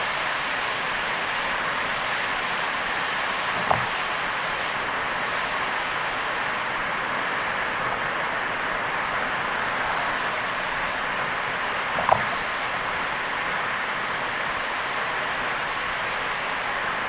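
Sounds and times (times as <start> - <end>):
tyres on wet road: 0.0 - 17.0
thump: 3.6 - 3.9, 12.0 - 12.4.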